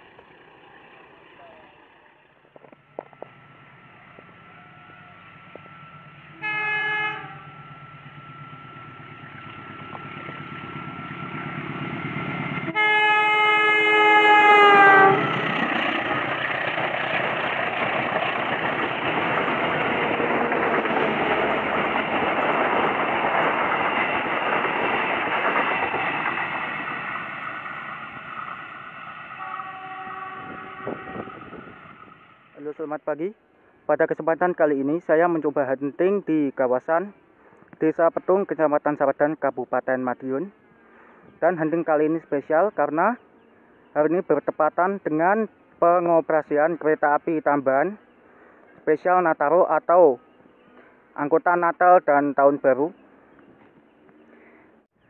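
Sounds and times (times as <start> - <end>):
train carriages rushing past: 0.0 - 32.7
train horn blasts: 6.2 - 7.7, 12.6 - 15.3, 29.4 - 31.9.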